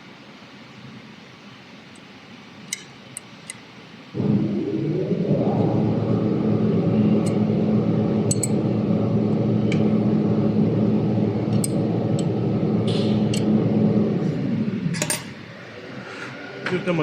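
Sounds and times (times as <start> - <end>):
electric motor humming: 4.2 - 15.6.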